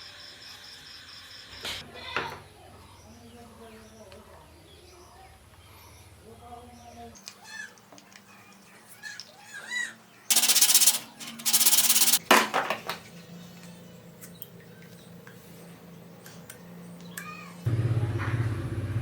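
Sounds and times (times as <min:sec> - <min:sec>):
rasping scrapes: 0:10.3 - 0:12.2
sharp click: 0:10.3 - 0:12.2.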